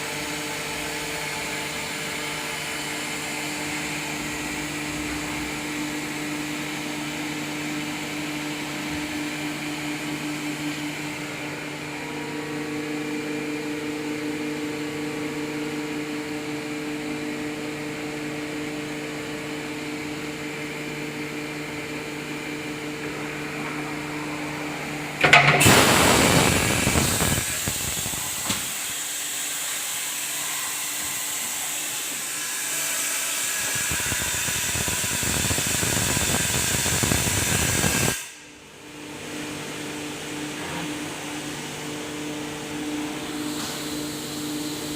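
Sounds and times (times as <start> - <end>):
machining center humming: 19.1 - 28.8
loud hissing rush: 25.6 - 28.6.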